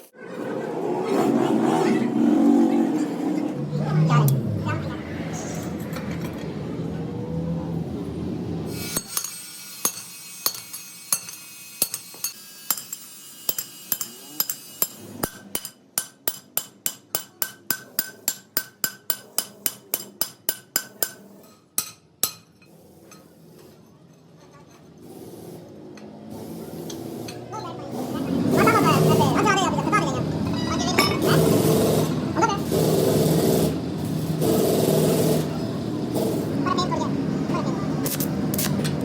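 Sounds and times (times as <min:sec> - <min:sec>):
hammer striking steel: 0:08.8 - 0:22.6.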